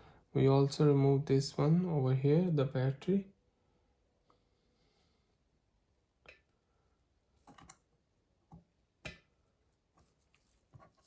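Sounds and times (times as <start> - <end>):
small tools clicking and tapping: 7.4 - 7.9.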